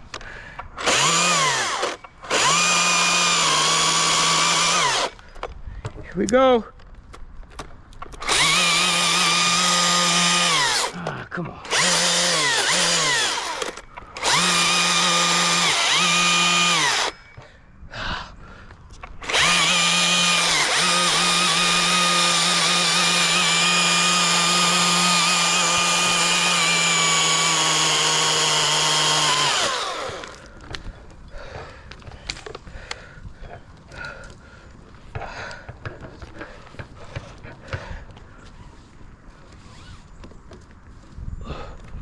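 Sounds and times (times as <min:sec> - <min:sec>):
chainsaw cutting tree limb: 0:00.8 - 0:05.2, 0:08.2 - 0:17.2, 0:19.2 - 0:30.8.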